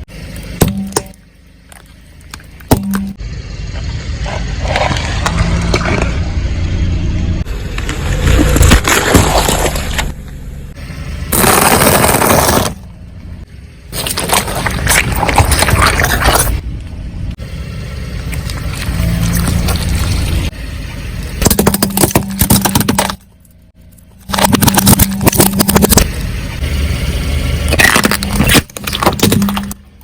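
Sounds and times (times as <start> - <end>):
low rumble of car: 0.0 - 30.0
objects crushed under car tyre: 0.4 - 3.2, 7.8 - 10.4, 11.3 - 12.9, 13.9 - 16.6, 21.3 - 26.3, 27.6 - 30.0.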